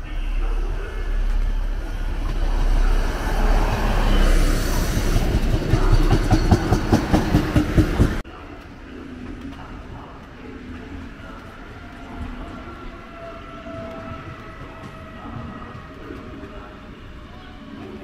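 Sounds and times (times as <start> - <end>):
train rumbling: 0.0 - 18.0
wheels clattering over rail joints: 5.1 - 8.2.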